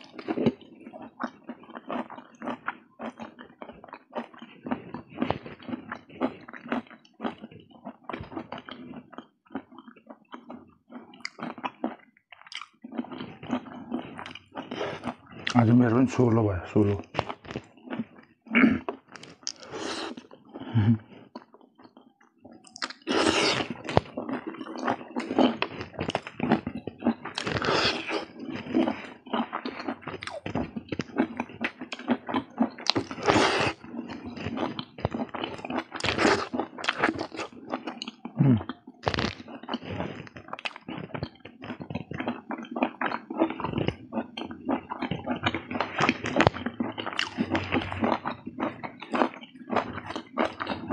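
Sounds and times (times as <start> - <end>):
close-miked chewing: 0.0 - 50.9
mouth smacks and clicks: 21.0 - 28.1.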